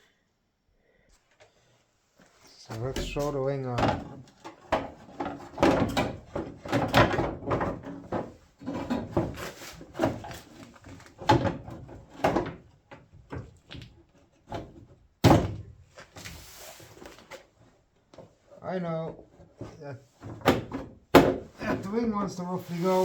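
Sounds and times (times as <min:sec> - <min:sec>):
brief scraping: 0:22.5 - 0:23.0.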